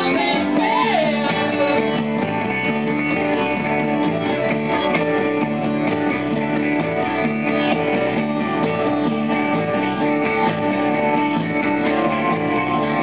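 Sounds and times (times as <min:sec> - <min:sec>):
bass line: 0:00.0 - 0:13.0
strummed guitars: 0:00.0 - 0:13.0.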